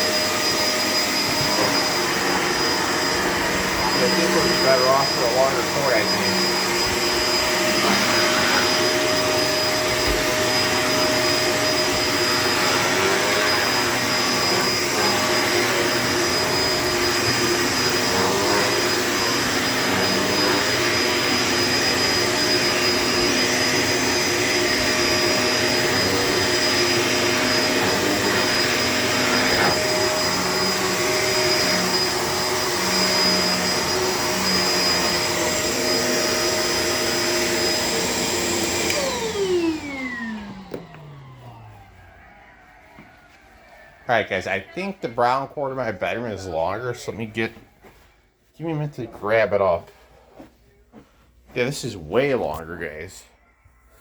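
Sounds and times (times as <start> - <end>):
vacuum cleaner running: 0.0 - 42.8.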